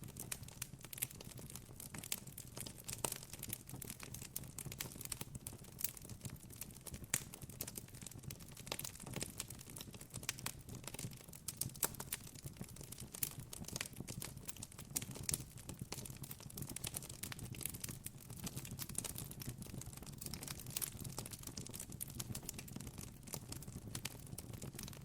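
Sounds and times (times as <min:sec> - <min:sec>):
campfire crackling and popping: 0:00.0 - 0:25.0.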